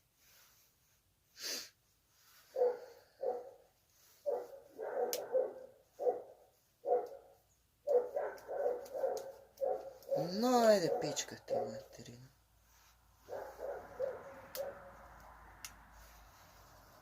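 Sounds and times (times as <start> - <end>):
dog barking: 2.5 - 3.6, 4.2 - 12.0, 13.2 - 15.0.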